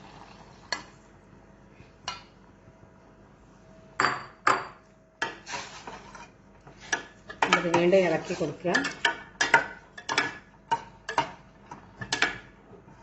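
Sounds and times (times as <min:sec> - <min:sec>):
metal spoon clinking against pot: 0:08.7 - 0:11.4.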